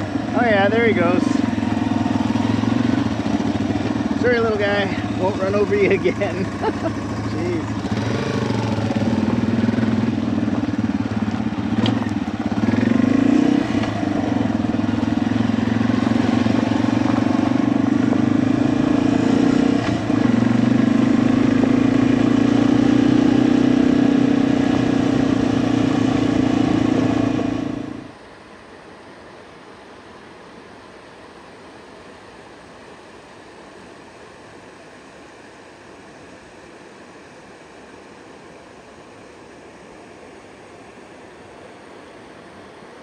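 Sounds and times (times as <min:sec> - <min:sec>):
motorcycle engine running: 0:00.0 - 0:28.1.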